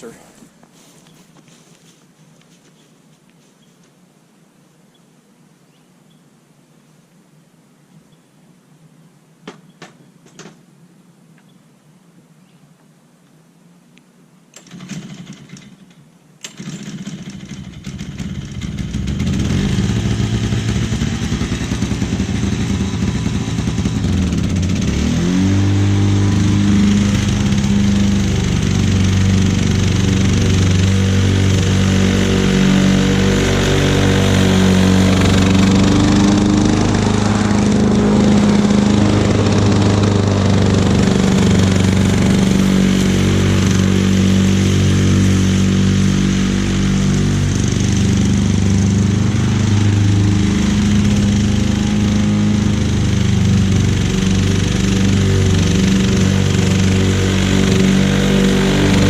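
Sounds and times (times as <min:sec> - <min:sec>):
push mower engine running: 0:16.4 - 0:59.0.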